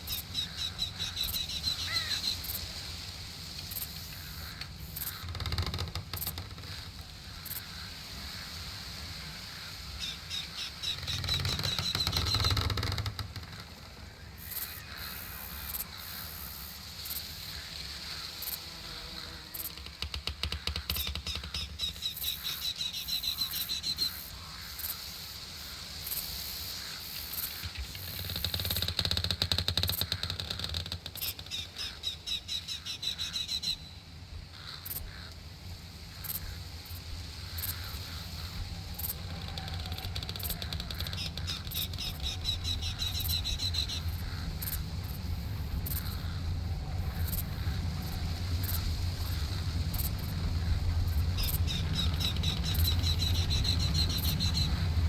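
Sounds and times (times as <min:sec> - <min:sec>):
songbird trilling: 0:00.0 - 0:02.7, 0:09.6 - 0:13.0, 0:18.1 - 0:25.0, 0:31.1 - 0:34.0, 0:37.6 - 0:55.0
low rumble: 0:42.0 - 0:55.0.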